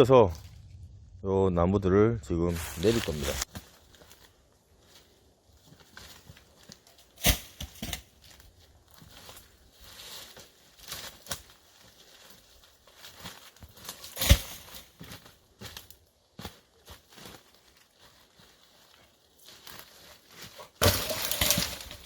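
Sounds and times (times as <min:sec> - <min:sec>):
logs rustling through dry leaves: 0:02.5 - 0:22.0
logs thudding: 0:07.2 - 0:08.4, 0:13.6 - 0:15.8, 0:20.4 - 0:22.0.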